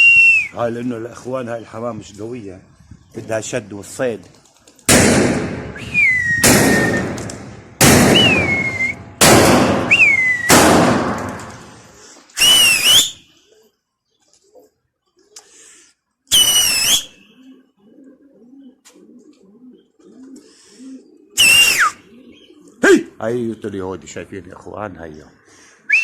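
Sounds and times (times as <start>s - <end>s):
sharp whistling: 0.0s - 0.6s, 5.7s - 7.3s, 8.1s - 10.7s, 12.4s - 13.3s, 16.3s - 17.3s, 21.4s - 22.0s
loud echoing bangs: 4.9s - 11.8s
pigeons cooing: 13.3s - 15.9s, 17.1s - 23.6s.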